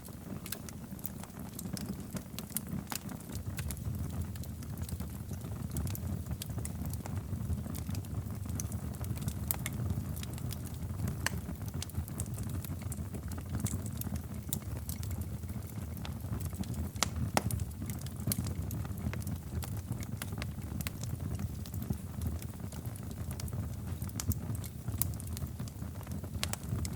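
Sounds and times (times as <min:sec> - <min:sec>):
fire pops and snaps: 0:00.0 - 0:26.9
low rumble of burning: 0:00.0 - 0:26.9
wood fire crackling: 0:00.0 - 0:26.9.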